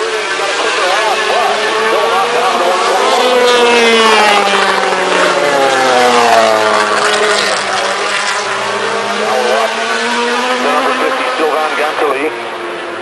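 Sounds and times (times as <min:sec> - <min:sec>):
racing motorcycle engines revving: 0:00.0 - 0:13.0.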